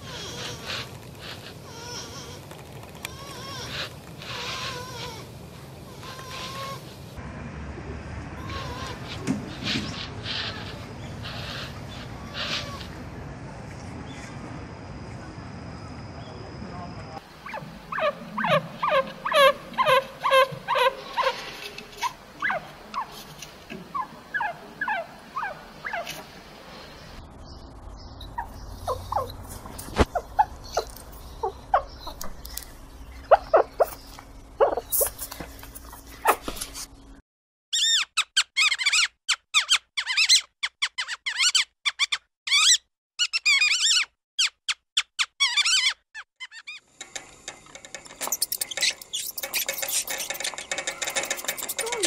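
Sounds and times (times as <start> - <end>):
chinchilla squeaking: 17.4 - 23.2, 23.9 - 26.2, 28.3 - 32.4, 33.2 - 35.2, 37.7 - 46.8, 48.2 - 52.0
mice squeaking: 17.4 - 23.3, 23.9 - 26.2, 28.2 - 36.5, 37.7 - 46.8, 48.2 - 52.0.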